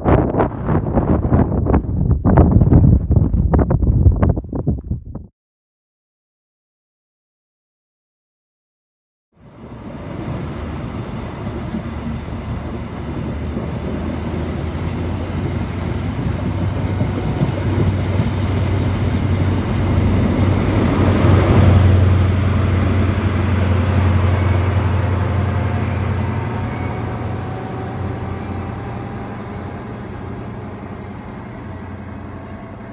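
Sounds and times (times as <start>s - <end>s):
diesel train engine drone: 9.4s - 32.9s
rail noise: 9.4s - 32.9s.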